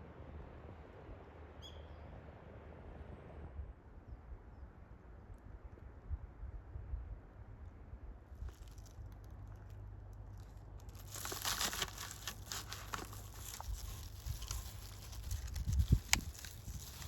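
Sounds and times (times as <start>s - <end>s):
dense crinkling and crackling: 8.4s - 17.0s.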